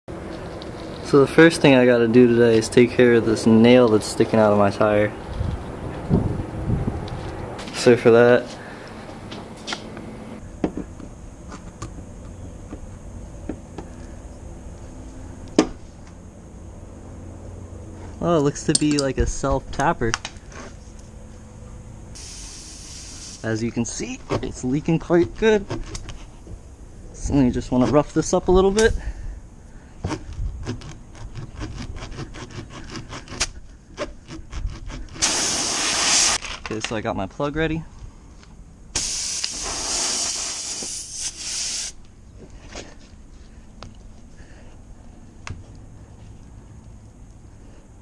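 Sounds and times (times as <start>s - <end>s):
hand tools clicking and knocking: 18.6s - 19.2s
reamer tool scraping in tire: 30.1s - 36.6s.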